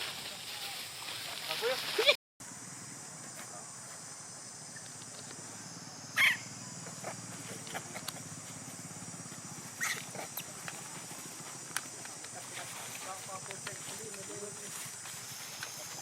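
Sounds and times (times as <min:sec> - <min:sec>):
monkey squeaking: 0:06.2 - 0:08.2, 0:09.7 - 0:10.5.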